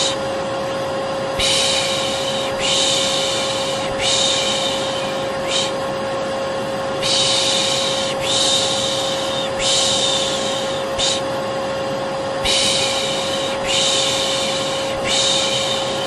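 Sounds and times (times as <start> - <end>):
vacuum cleaner humming: 0.0 - 16.0
person shushing: 1.4 - 5.9, 7.0 - 11.3, 12.4 - 16.0.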